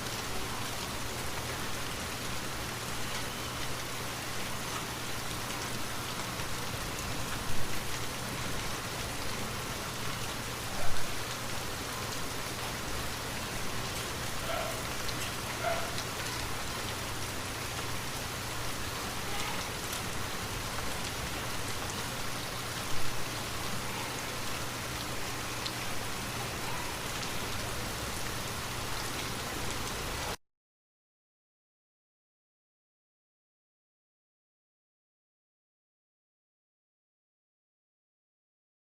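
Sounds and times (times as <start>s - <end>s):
loud raindrops: 0.0s - 30.4s
steady rain falling: 0.0s - 30.4s.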